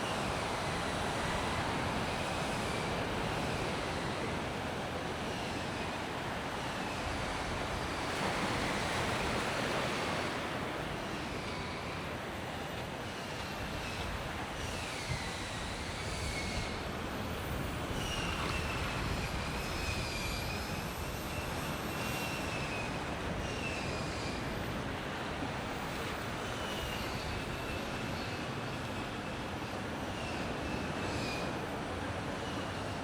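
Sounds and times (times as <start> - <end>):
faint thin whistling glides: 11.3 - 25.1, 25.8 - 33.0.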